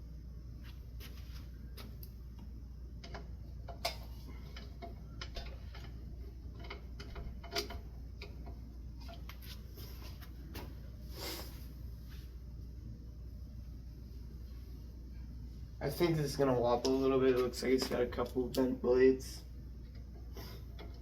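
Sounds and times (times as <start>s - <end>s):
steady low hum: 0.0s - 21.0s
clicks and taps of fan parts: 1.8s - 9.6s, 16.8s - 18.9s.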